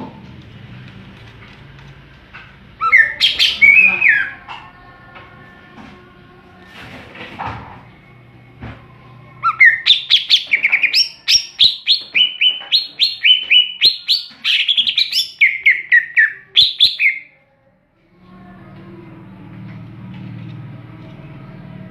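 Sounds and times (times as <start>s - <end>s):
bird whistling song: 2.8s - 4.4s, 9.4s - 17.3s.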